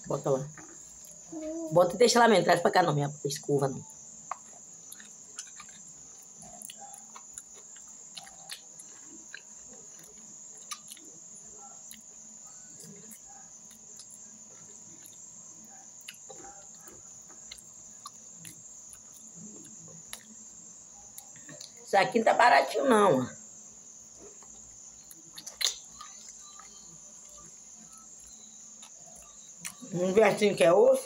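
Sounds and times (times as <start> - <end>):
cricket trill: 0.0 - 31.0
person chewing meat: 4.3 - 11.2, 16.0 - 20.3.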